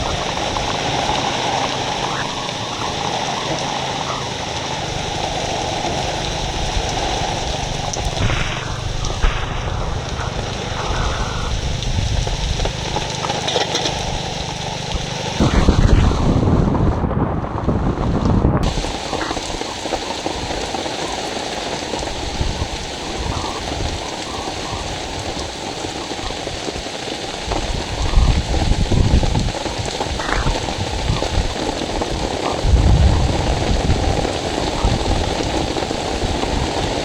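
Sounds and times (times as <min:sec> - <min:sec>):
heavy rain falling: 0:00.0 - 0:37.0
low rumble: 0:06.2 - 0:13.3, 0:14.2 - 0:18.8.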